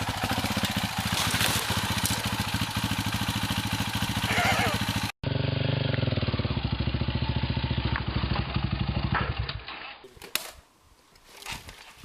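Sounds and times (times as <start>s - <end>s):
dirt bike engine running: 0.0s - 9.6s.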